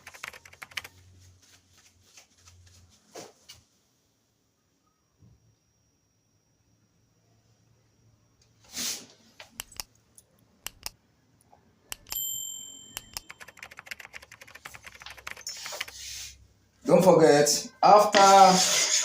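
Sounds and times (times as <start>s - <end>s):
bright ringing metal clink: 12.1s - 13.2s.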